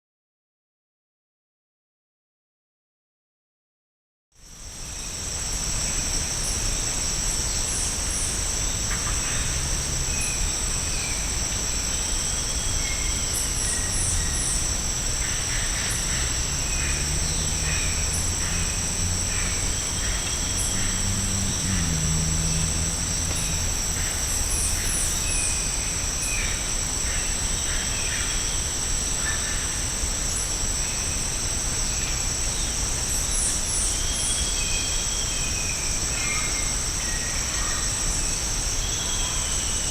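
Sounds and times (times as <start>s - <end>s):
high-pitched insect drone: 5.0s - 35.0s.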